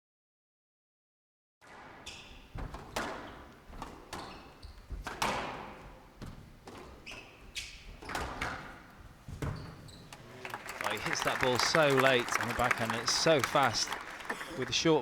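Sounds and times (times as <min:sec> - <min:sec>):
shoes squeaking on court floor: 0:01.7 - 0:10.4
squash ball hits: 0:02.4 - 0:06.9.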